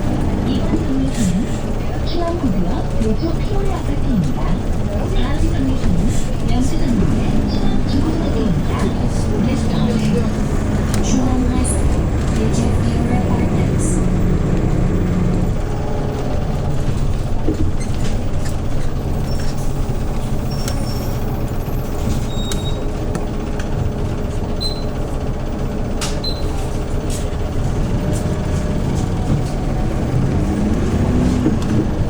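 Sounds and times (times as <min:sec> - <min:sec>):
bus engine running: 0:00.0 - 0:32.0.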